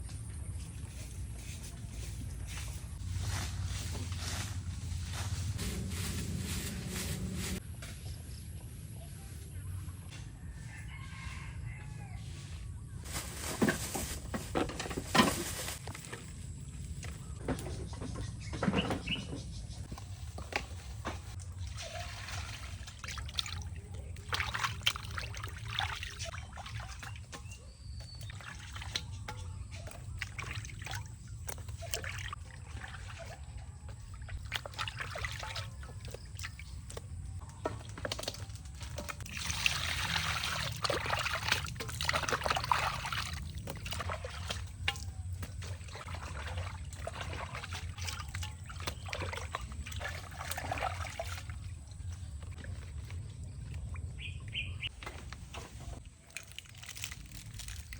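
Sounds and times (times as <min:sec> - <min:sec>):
water trickling and pouring: 0:20.3 - 0:57.9.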